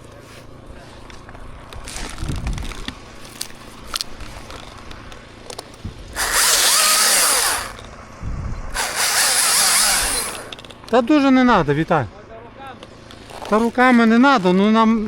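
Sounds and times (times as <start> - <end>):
chainsaw revving through wood: 6.2 - 7.8, 8.7 - 10.6.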